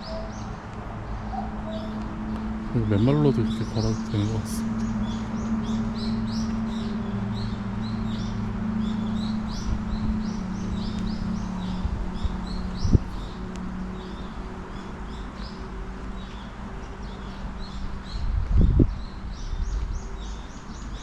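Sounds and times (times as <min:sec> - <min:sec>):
songbirds chirping: 0:00.0 - 0:21.0
steady low hum: 0:00.0 - 0:21.0.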